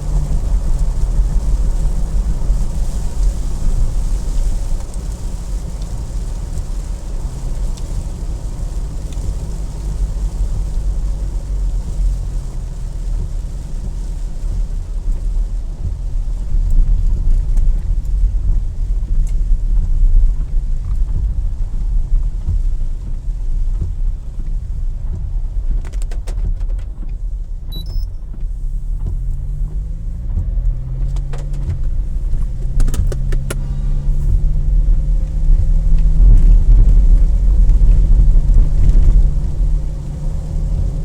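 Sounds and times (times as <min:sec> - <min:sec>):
road and engine rumble: 0:00.0 - 0:41.0
clicks inside car: 0:13.1 - 0:41.0.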